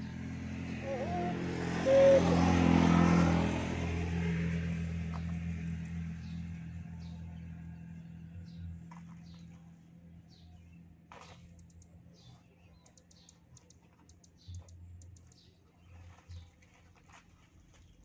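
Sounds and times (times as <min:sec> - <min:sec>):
vehicle engine passing by: 0:00.0 - 0:11.5.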